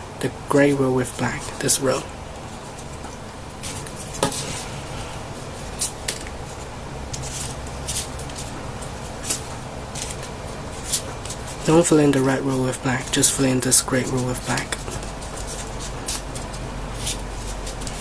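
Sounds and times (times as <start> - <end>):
steady low hum: 0.0 - 18.0
paper rustling: 7.1 - 12.1, 12.7 - 18.0.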